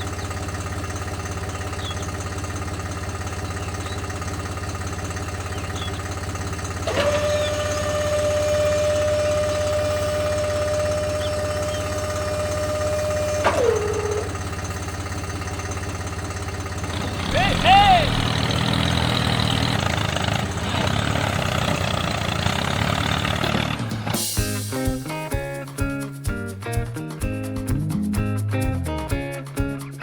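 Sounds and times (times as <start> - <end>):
small electric motor whining: 6.5 - 16.0.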